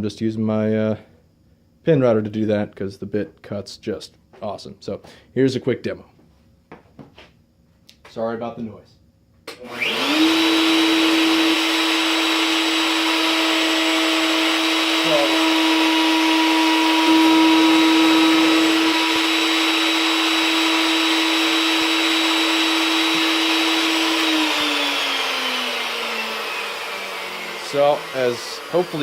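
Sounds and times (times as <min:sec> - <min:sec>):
router spinning down: 0:09.5 - 0:29.0
router whining: 0:09.5 - 0:29.0.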